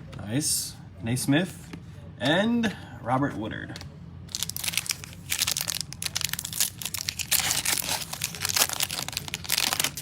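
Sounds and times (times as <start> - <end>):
plastic wrapper crinkling and tearing: 4.3 - 10.0.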